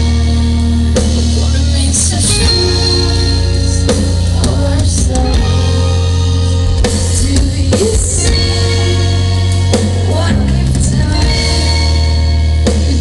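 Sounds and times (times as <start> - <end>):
loud rock band playing: 0.0 - 13.0
woman singing: 0.0 - 13.0.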